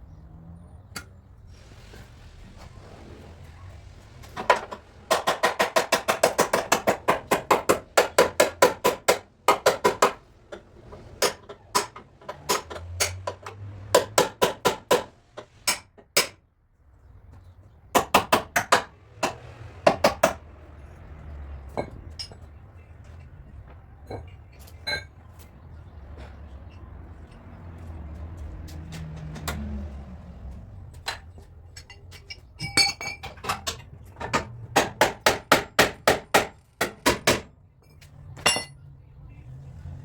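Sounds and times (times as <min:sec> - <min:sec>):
hammer tapping on sheet metal: 0:04.5 - 0:10.2, 0:34.2 - 0:37.5.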